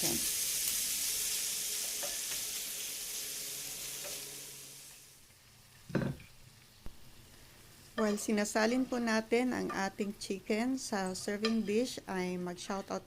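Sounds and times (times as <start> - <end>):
chicken sizzling in a pan: 0.0 - 9.6.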